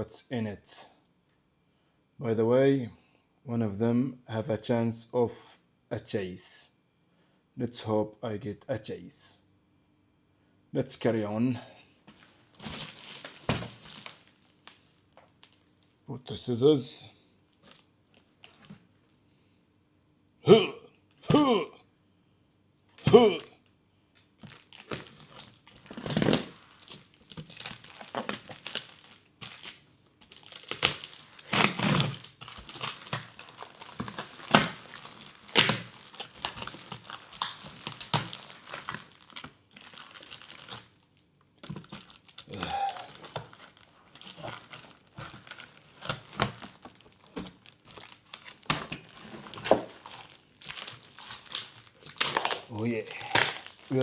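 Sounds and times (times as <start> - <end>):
packaging being torn open: 12.1 - 16.0, 24.3 - 54.0.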